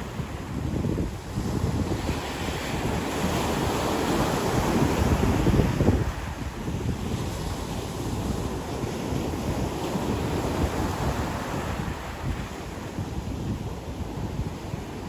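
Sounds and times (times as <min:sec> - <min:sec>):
ocean surf washing onto beach: 0:00.0 - 0:15.0
wind buffeting microphone: 0:00.0 - 0:15.0.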